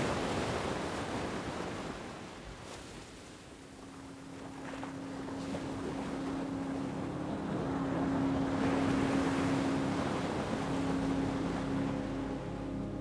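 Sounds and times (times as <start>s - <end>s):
low drone: 4.8s - 13.0s.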